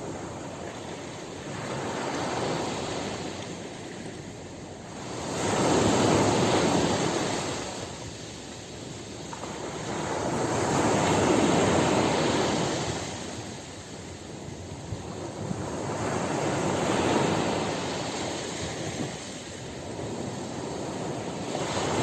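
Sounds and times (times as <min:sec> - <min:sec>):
ocean surf washing: 0:00.0 - 0:22.0.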